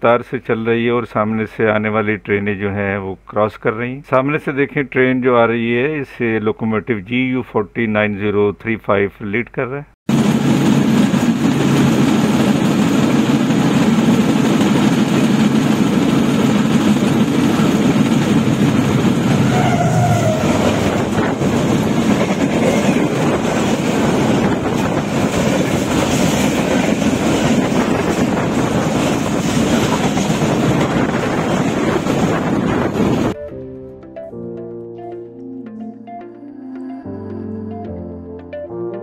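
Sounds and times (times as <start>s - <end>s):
diesel locomotive rumble: 10.1s - 33.4s
train coaches rushing past: 10.1s - 33.4s.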